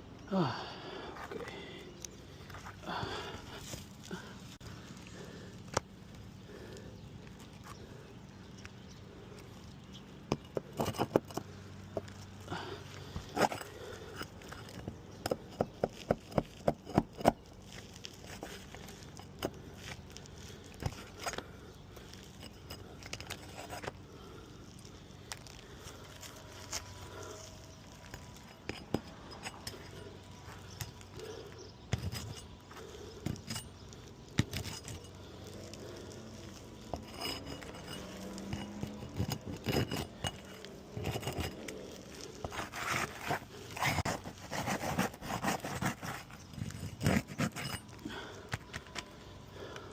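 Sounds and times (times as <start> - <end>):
tools clicking and scraping: 10.2 - 24.1, 24.7 - 49.9.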